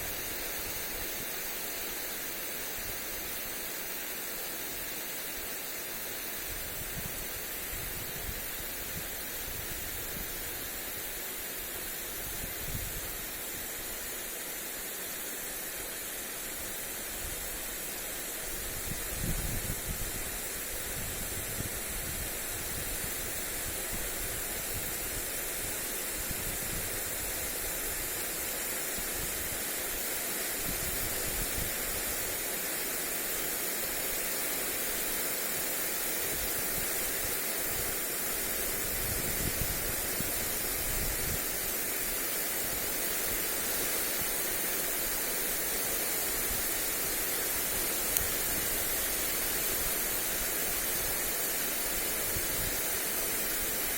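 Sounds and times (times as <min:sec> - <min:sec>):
lawn sprinkler spraying water: 0:00.0 - 0:53.9
wind rumble on microphone: 0:06.5 - 0:10.5, 0:12.2 - 0:13.2, 0:18.6 - 0:25.3, 0:26.1 - 0:27.5, 0:38.8 - 0:41.6.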